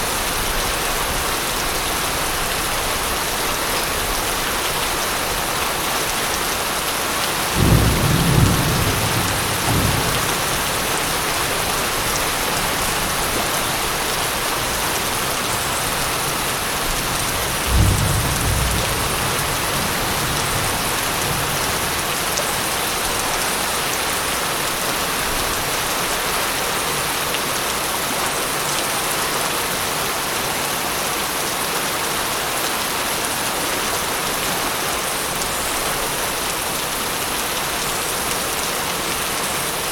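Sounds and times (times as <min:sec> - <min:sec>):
heavy rain falling: 0:00.0 - 0:39.9
low rolls of thunder: 0:07.6 - 0:11.9, 0:17.6 - 0:21.8.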